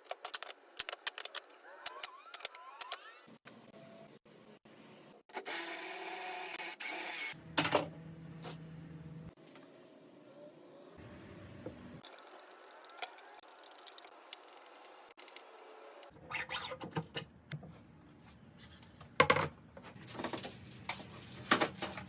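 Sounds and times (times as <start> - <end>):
tools and parts being handled: 16.9 - 22.0.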